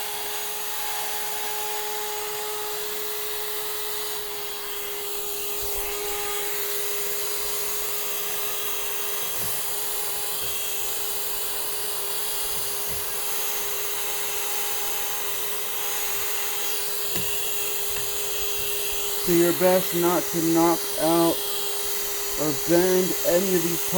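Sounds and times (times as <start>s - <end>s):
vacuum cleaner running: 0.0s - 23.9s
nozzle knocking against wood: 9.3s - 10.7s, 12.5s - 13.3s, 17.1s - 19.0s.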